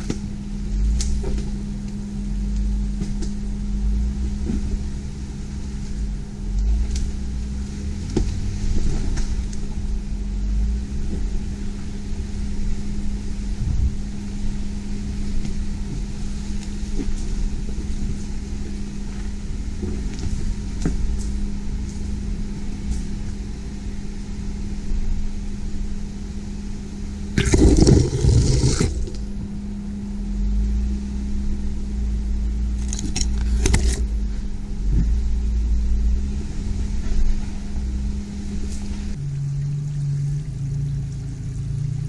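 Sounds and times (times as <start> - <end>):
vehicle engine rumbling: 0.0 - 42.0
loud noisy burst: 27.4 - 29.2.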